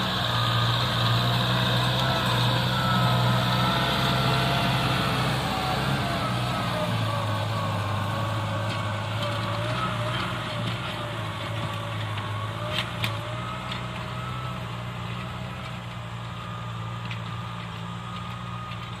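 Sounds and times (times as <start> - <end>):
tractor engine running: 0.0 - 19.0
wavering engine whine: 0.0 - 19.0.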